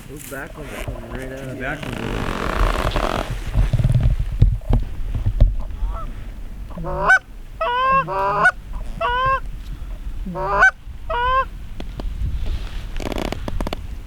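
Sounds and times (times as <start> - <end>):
goose honking: 6.7 - 9.5, 10.3 - 11.5.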